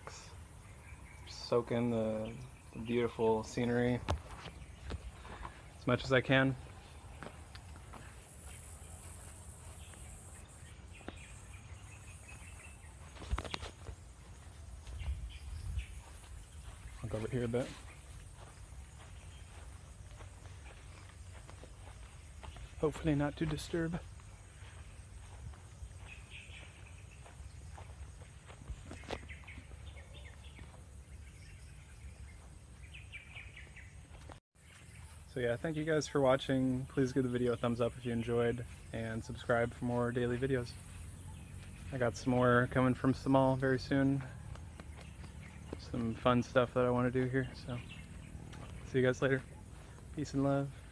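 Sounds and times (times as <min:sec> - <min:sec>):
faint bird chirps: 0:00.0 - 0:50.9
low outdoor rumble: 0:36.8 - 0:50.9.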